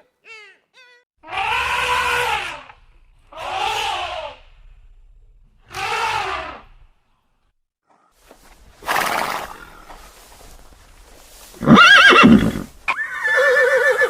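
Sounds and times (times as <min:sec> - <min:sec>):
animal crying: 0:00.0 - 0:04.6, 0:05.7 - 0:06.7, 0:11.6 - 0:14.0.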